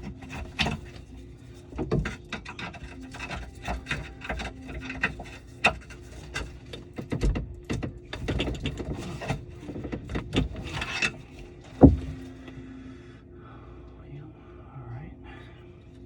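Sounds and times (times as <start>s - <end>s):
tools clicking knocking and scraping: 0.0s - 12.3s
faint steady hum: 0.0s - 16.0s.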